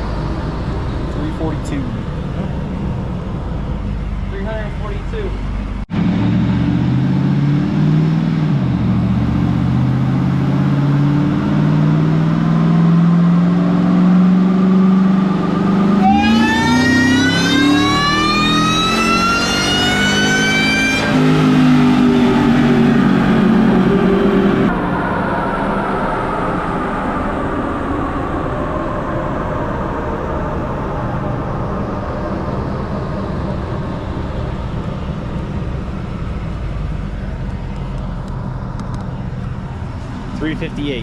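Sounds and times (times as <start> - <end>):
high supercharger whine: 0.0 - 41.0
engine revving on a dyno: 5.9 - 37.2.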